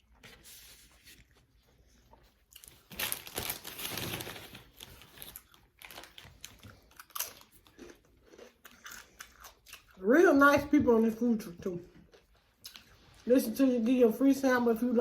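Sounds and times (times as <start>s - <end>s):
loud crinkling rustle: 2.6s - 6.6s.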